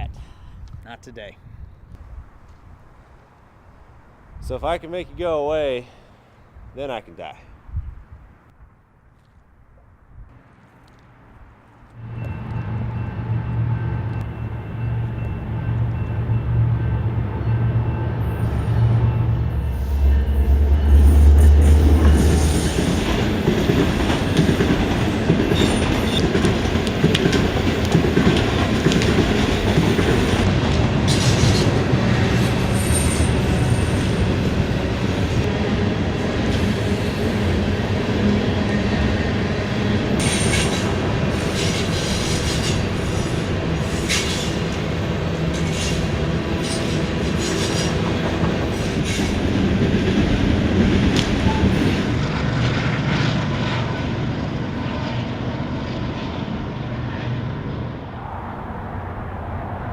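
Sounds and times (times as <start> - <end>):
train wheels rumbling and clacking: 11.9 - 56.8.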